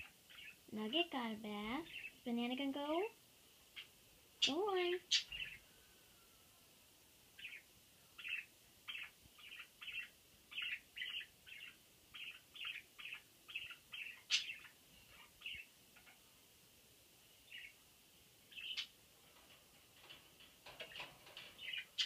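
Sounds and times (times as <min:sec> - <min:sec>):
budgerigar chirping: 0:03.8 - 0:05.6, 0:08.2 - 0:16.2, 0:18.5 - 0:19.0.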